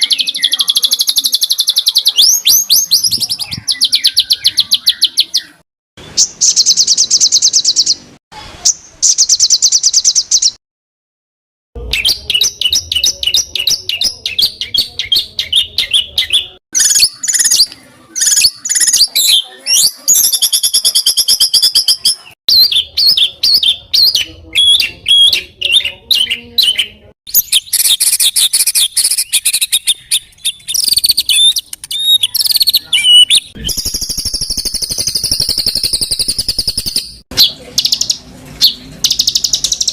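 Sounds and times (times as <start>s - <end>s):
songbird trills and chattering: 12.0s - 38.2s.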